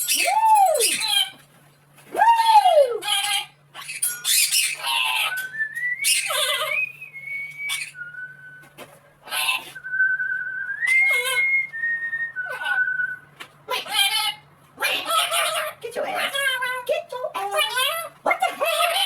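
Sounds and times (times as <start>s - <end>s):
parrot whistling: 0.0s - 1.3s, 2.7s - 8.6s, 9.3s - 13.2s
parrot squawking: 0.0s - 1.4s, 2.4s - 7.0s, 7.7s - 8.0s, 9.2s - 9.8s, 10.9s - 11.5s, 12.4s - 12.9s, 13.7s - 19.0s.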